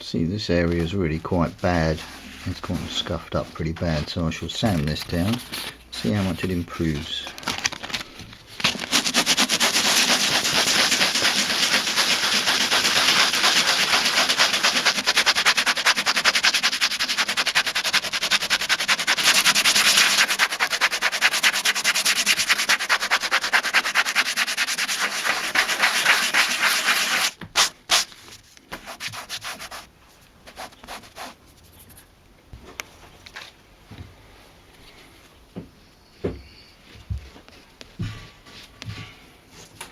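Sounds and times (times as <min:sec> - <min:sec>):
sandpaper scraping leather: 0:08.6 - 0:29.9, 0:30.5 - 0:31.4.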